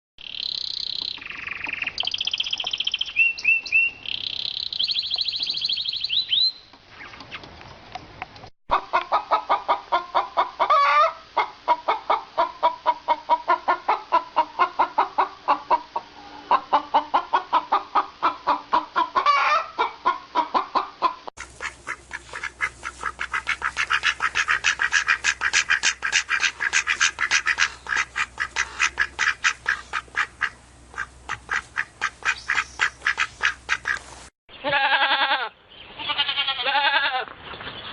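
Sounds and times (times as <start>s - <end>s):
fast high-pitched bird calls: 0.2s - 7.2s, 32.0s - 34.0s
high bird chirps and trills: 0.2s - 7.2s, 32.1s - 33.9s
rapid low bird calls: 21.4s - 34.1s.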